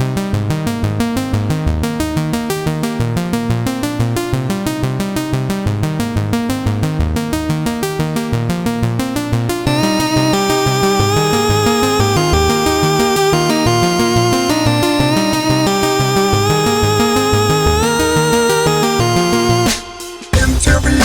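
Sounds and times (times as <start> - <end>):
synthesizer lines: 1.0 - 20.9
fast drum-machine beat: 9.7 - 21.0.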